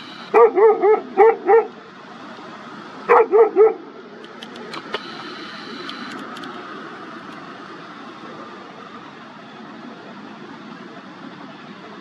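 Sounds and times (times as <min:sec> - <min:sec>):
steady background hiss: 0:00.0 - 0:00.4, 0:03.8 - 0:12.0
dog barking: 0:00.3 - 0:01.8, 0:03.1 - 0:03.9
faint clicks: 0:04.2 - 0:06.6.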